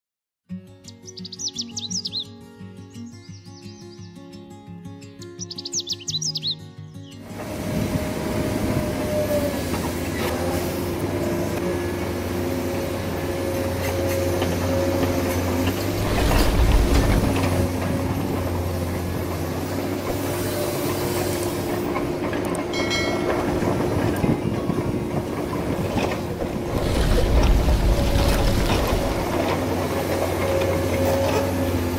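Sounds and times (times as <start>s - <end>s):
loud low rumble: 15.8s - 18.6s.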